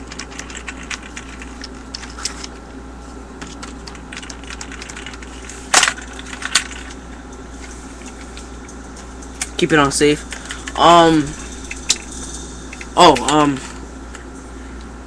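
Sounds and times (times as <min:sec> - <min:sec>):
toy gun parts clicking: 0:03.5 - 0:06.9.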